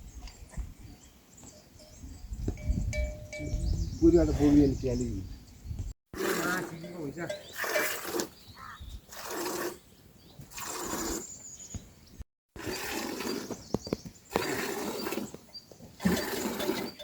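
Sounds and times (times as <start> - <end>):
livestock calling: 6.2 - 9.7.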